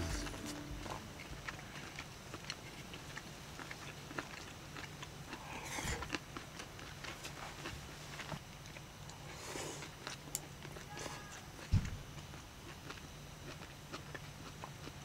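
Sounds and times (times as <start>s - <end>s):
people chewing: 0.0s - 15.0s.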